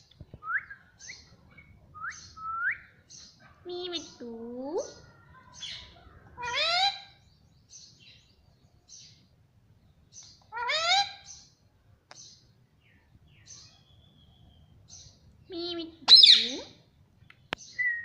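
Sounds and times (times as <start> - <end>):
parrot meow-like calls: 5.6 - 7.1, 10.5 - 11.2.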